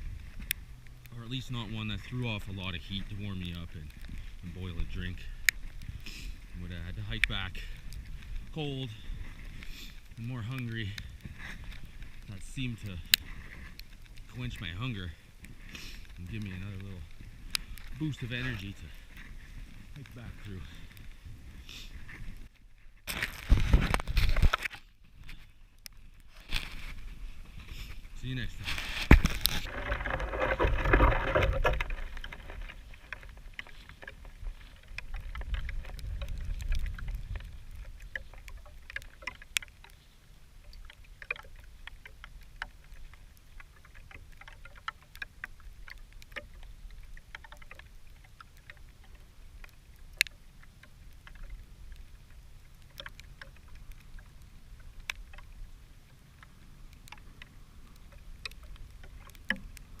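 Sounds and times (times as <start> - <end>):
campfire crackling and popping: 0.0 - 60.0.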